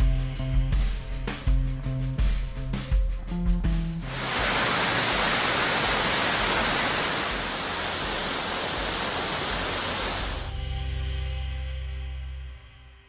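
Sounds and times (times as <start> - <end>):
waterfall rushing: 4.1 - 10.5.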